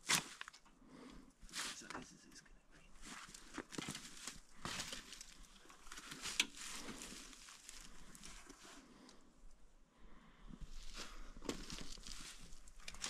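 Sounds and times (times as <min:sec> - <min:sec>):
rustling: 0:03.0 - 0:09.2, 0:10.7 - 0:13.0.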